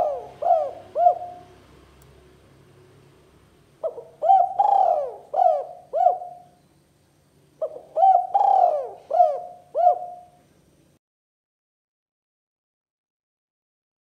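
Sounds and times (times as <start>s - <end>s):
dove cooing: 0.0s - 1.7s, 3.8s - 6.6s, 7.6s - 10.4s.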